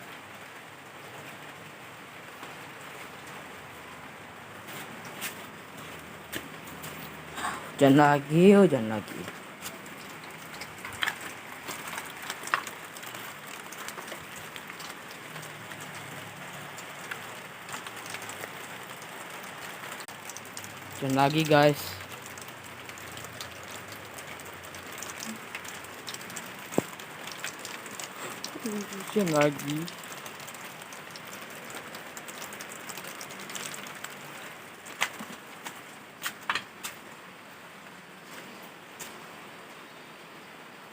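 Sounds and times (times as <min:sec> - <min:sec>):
rain hissing: 0:00.0 - 0:40.9
sharp drips and taps: 0:05.0 - 0:37.0
water drops landing close by: 0:08.7 - 0:37.0.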